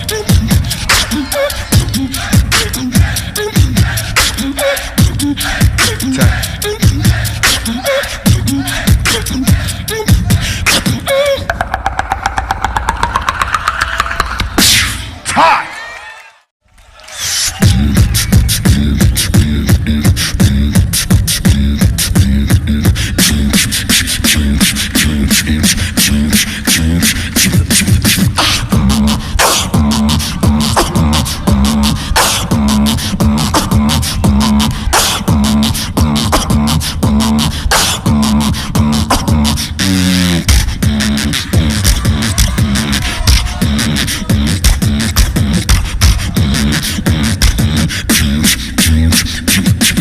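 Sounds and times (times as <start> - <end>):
beatboxing: 0.0 - 15.7, 17.2 - 50.0
pulsing low bass line: 24.2 - 49.2.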